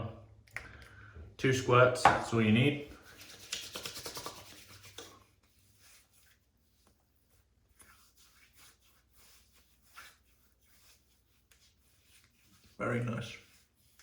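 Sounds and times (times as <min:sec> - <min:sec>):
hands rubbing face: 0:02.9 - 0:14.0.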